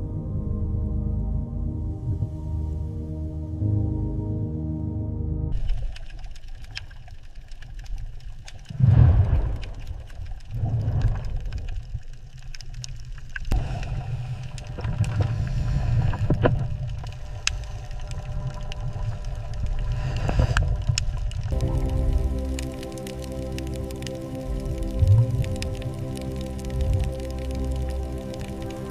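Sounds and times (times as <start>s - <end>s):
rumble of moving water: 0.0s - 4.5s, 5.5s - 28.9s
faint clicks: 5.6s - 15.5s, 16.1s - 28.9s.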